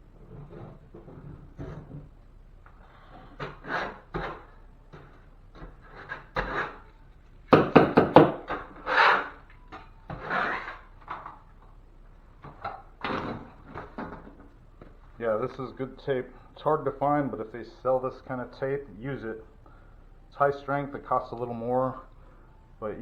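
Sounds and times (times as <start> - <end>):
hands rubbing tape on drywall: 5.6 - 6.9, 8.6 - 9.4, 10.1 - 10.8.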